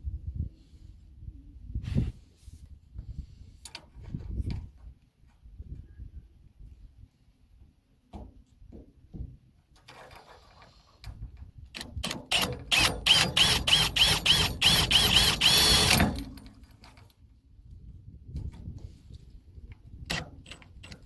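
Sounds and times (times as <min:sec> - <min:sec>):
power drill drilling into metal: 0:12.1 - 0:16.4.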